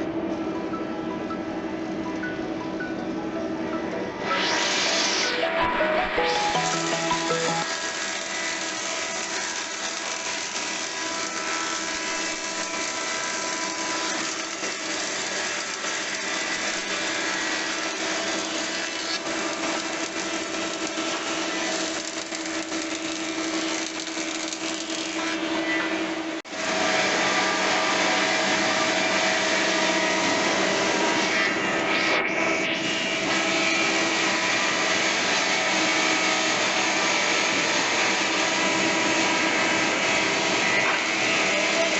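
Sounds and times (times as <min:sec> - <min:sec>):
thickness planer planing wood: 0:06.6 - 0:22.0, 0:26.5 - 0:31.6.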